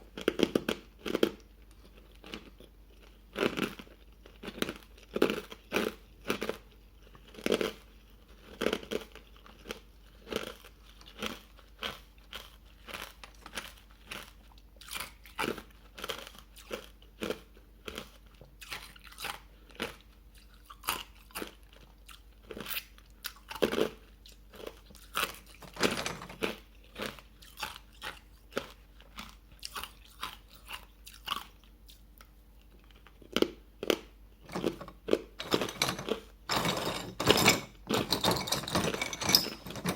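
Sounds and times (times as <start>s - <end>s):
chewing crunches: 0.1s - 25.6s, 26.4s - 35.4s
ice cubes crunching: 33.2s - 39.9s.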